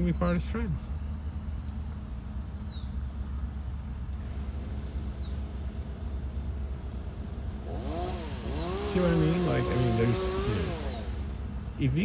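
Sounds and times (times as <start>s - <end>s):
low outdoor rumble: 0.0s - 12.0s
bird chirping: 2.5s - 3.0s, 5.0s - 5.4s, 8.4s - 9.0s, 10.6s - 11.0s.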